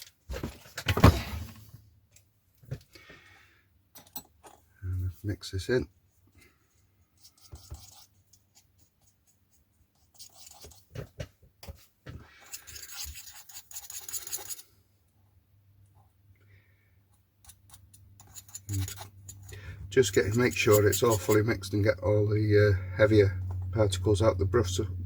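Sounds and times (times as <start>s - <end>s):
paintbrush scraping in dish: 12.3s - 14.7s, 17.5s - 21.9s.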